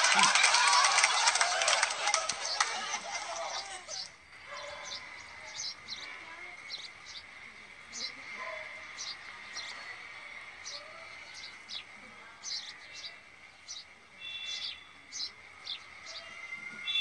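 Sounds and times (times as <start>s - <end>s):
high bird-like chirps: 14.2s - 15.0s.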